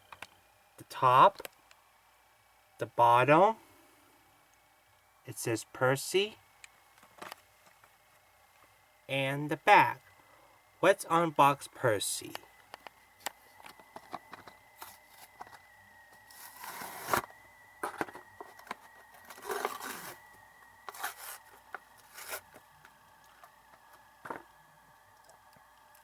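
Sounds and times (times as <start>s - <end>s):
packaging clicks and scrapes: 16.2s - 20.2s, 20.9s - 22.7s
packaging tearing and rustling: 16.3s - 17.3s, 19.2s - 20.2s, 20.9s - 22.6s.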